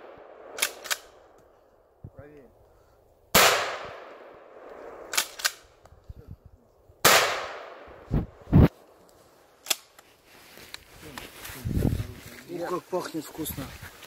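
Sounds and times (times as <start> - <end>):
gunshot with echo: 3.4 - 4.2, 7.0 - 7.9.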